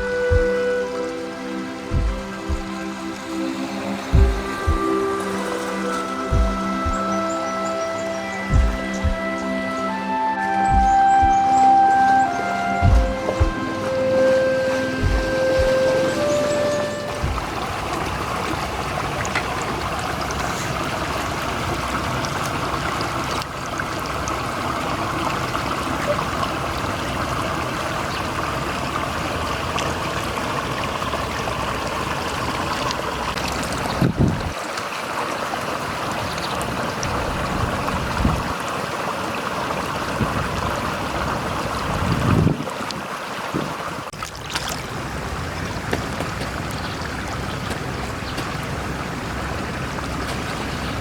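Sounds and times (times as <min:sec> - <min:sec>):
short low thumps: 0:00.0 - 0:01.0, 0:01.9 - 0:02.8, 0:04.1 - 0:05.4, 0:06.3 - 0:07.4, 0:08.5 - 0:09.8, 0:10.4 - 0:11.9, 0:12.8 - 0:14.2, 0:15.0 - 0:17.8
flowing water: 0:00.0 - 0:51.0.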